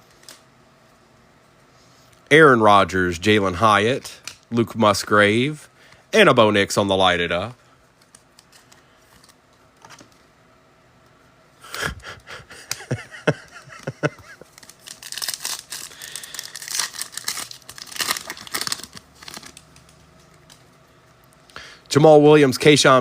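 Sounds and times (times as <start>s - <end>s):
foil pack tearing and crinkling: 14.1s - 20.0s.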